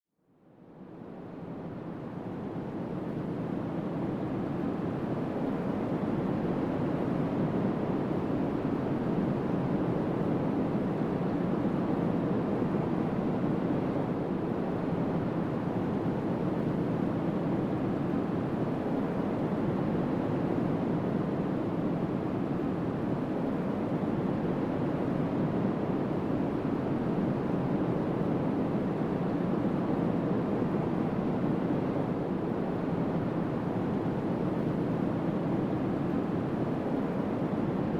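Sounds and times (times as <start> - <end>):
strong wind over open water: 0.6 - 37.9.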